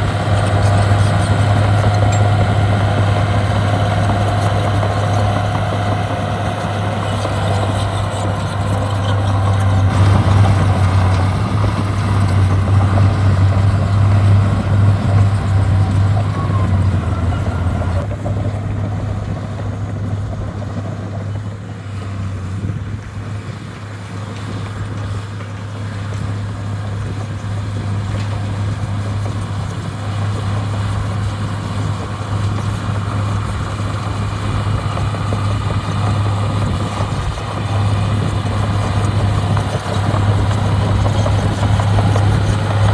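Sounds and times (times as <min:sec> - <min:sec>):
diesel engine humming: 0:00.0 - 0:42.9.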